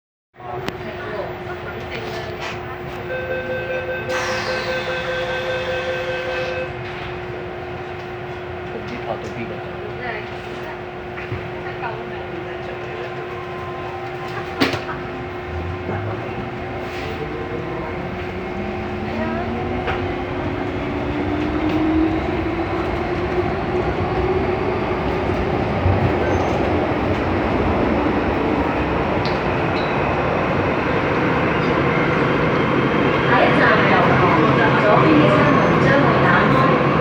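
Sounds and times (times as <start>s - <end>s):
electric train motor whine: 0.8s - 6.8s.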